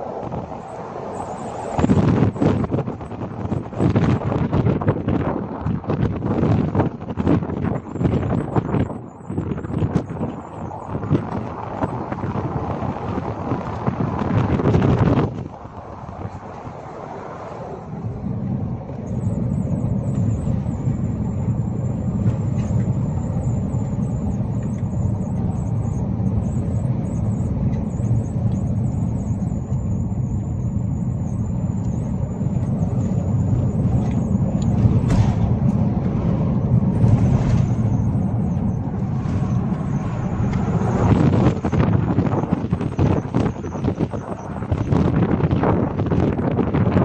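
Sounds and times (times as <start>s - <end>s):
car engine and road rumble: 0.0s - 47.0s
thin high whine: 0.0s - 47.0s
sharp click: 34.0s - 35.9s.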